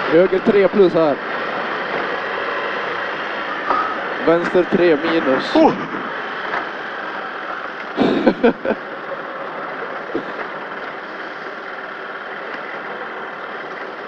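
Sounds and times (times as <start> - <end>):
car engine running: 0.0 - 14.0
crew voice outburst: 4.2 - 6.0.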